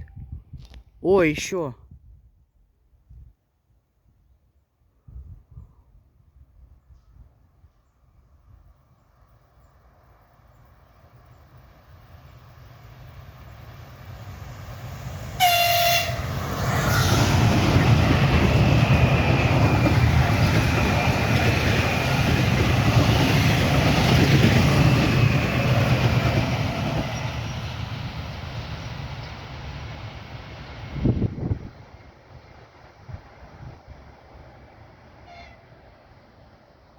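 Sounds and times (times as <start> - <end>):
train wheels rumbling on rails: 10.5 - 35.2
train horn blast: 15.4 - 16.3, 35.2 - 35.7.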